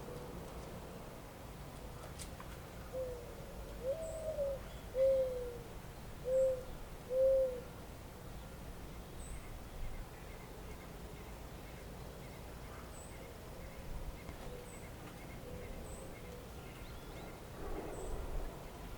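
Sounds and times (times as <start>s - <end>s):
bird hooting coos: 2.9s - 7.7s.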